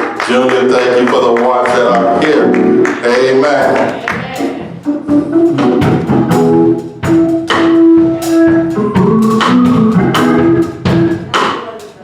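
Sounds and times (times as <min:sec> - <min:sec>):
gospel singing: 0:08.4 - 0:11.5.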